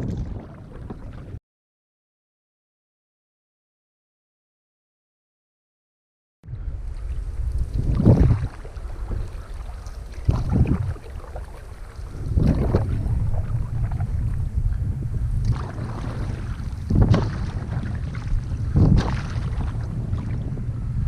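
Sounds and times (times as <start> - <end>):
canoe paddle splashing: 0.0 - 1.4, 6.6 - 20.8
wind rumble on microphone: 0.0 - 1.4, 6.4 - 21.0.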